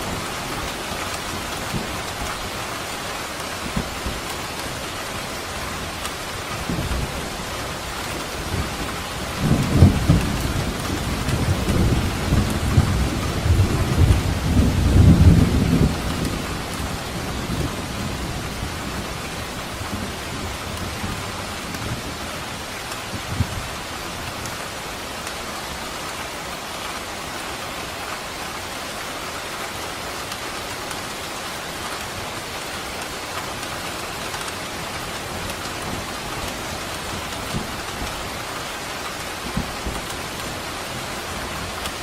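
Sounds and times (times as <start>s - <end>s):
steady rain: 0.0s - 42.0s
rolling thunder: 8.1s - 19.1s.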